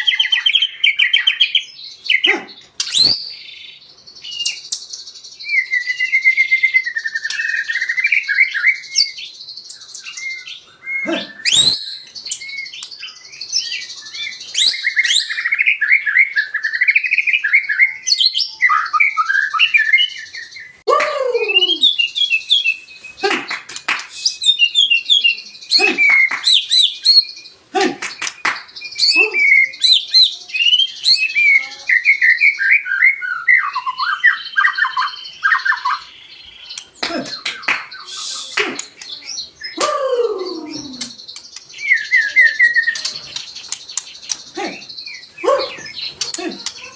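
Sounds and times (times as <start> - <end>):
bird singing whistled trills: 2.8 - 46.9
sharp clicks: 42.9 - 44.6.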